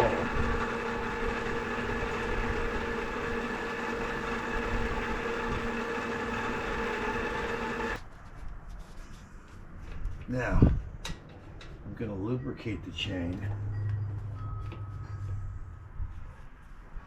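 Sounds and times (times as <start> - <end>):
electric bike motor whining: 0.0 - 8.0.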